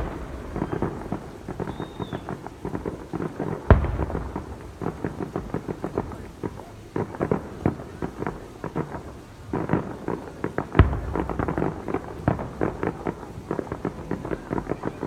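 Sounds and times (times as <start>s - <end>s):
loud firework boom: 0.0s - 3.0s, 3.6s - 6.5s
fireworks bangs and crackles: 0.0s - 15.0s.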